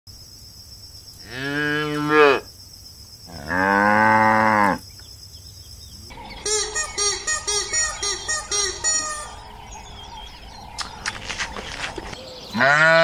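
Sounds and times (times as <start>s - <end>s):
cow mooing: 1.2s - 2.4s, 3.3s - 4.8s, 12.5s - 13.0s.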